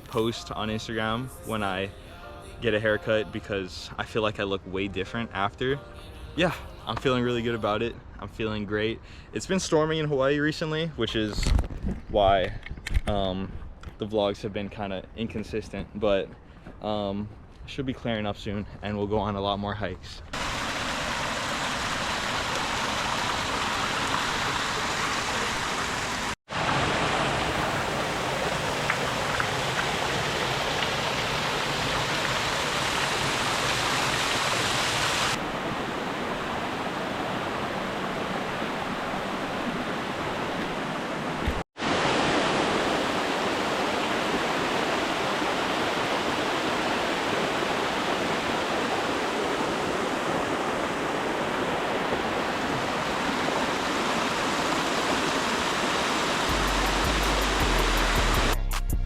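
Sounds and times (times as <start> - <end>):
flowing water: 20.3 - 58.6.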